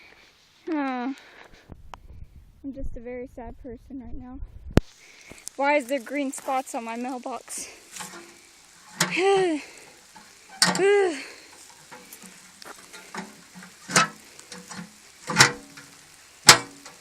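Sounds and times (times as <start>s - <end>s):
raindrops tapping on microphone: 4.8s - 17.0s.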